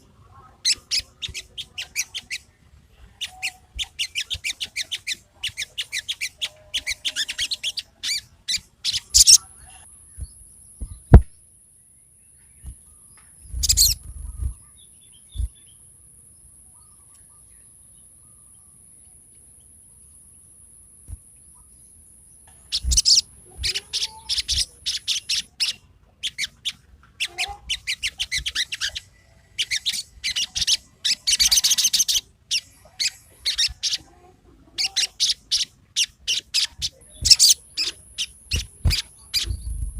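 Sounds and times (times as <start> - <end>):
songbird singing high chattering notes: 0.6 - 2.6, 3.2 - 11.2, 12.0 - 20.1, 21.4 - 34.1, 34.8 - 39.9
faint steady high whine: 8.4 - 23.6.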